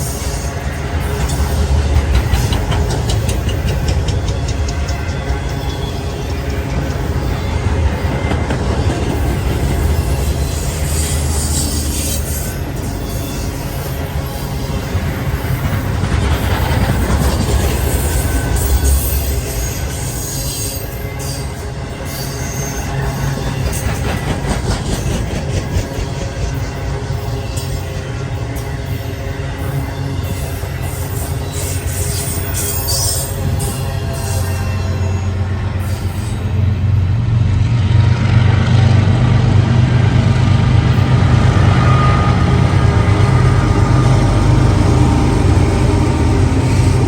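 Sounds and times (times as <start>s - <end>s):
train wheels rumbling on rails: 0.0s - 47.0s
wheel squeal: 9.5s - 15.8s.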